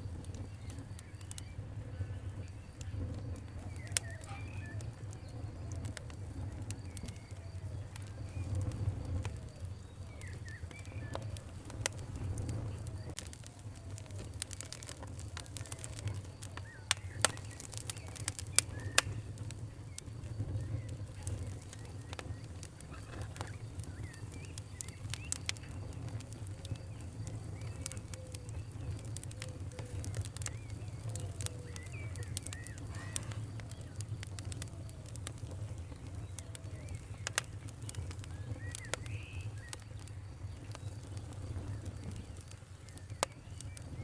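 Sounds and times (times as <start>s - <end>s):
wood fire crackling and popping: 0.0s - 44.0s
birds calling: 15.4s - 44.0s.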